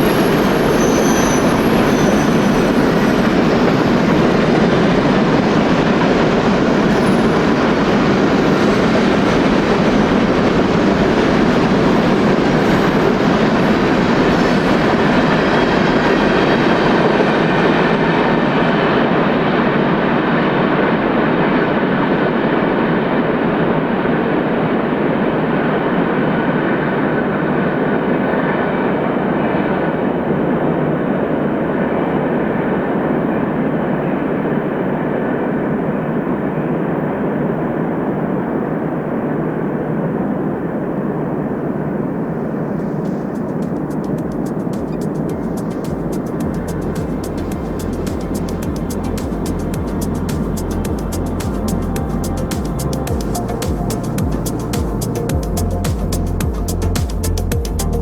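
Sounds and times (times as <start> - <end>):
wheel squeal: 0.0 - 18.7
train wheels rumbling on rail: 0.0 - 58.0.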